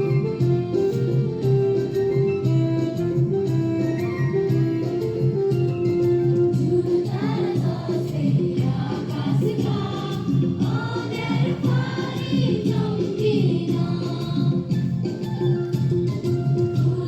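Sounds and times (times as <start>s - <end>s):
musical backing: 0.0s - 17.0s
students singing in chorus: 6.8s - 14.8s.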